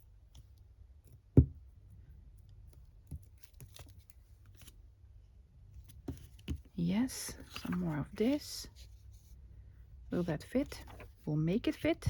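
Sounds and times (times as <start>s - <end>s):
low steady hum: 0.0s - 12.0s
paper rustling: 5.9s - 9.2s, 10.3s - 11.2s.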